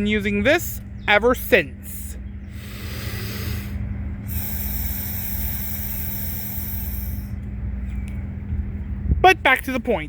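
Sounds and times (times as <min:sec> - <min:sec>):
breathing through a straw: 0:02.5 - 0:07.4.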